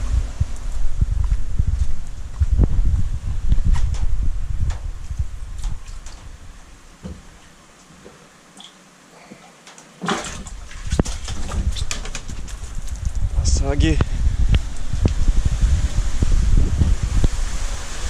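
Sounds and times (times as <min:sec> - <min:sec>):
wind on microphone: 0:00.0 - 0:07.3, 0:10.3 - 0:18.0
microphone handling clicks: 0:00.5 - 0:06.4
water splash: 0:10.0 - 0:13.0.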